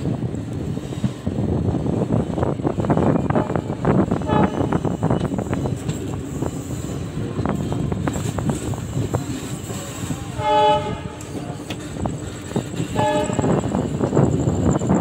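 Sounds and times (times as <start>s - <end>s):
train rumble: 0.0s - 15.0s
locomotive horn: 3.1s - 5.0s, 10.3s - 11.4s, 12.9s - 13.6s
wheels clicking over rail joints: 11.1s - 15.0s.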